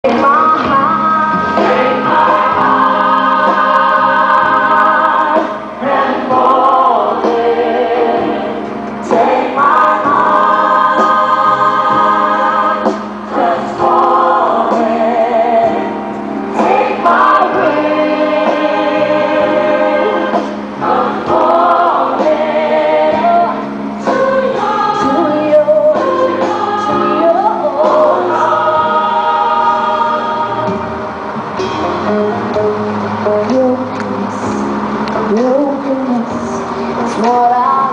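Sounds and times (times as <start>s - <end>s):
gospel choir singing: 0.0s - 33.6s.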